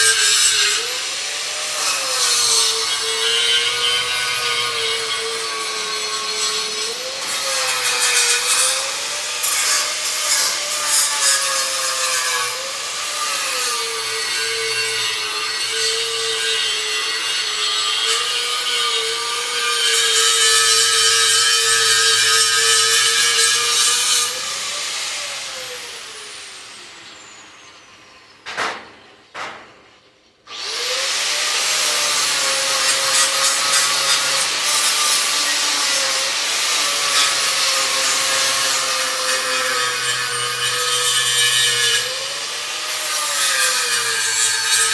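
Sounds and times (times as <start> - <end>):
short knocks: 28.4 - 30.1.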